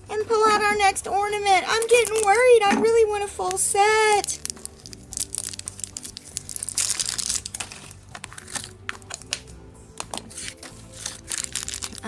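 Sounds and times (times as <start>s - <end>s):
soft background music: 0.0s - 12.0s
packaging crinkling and tearing: 4.2s - 12.0s.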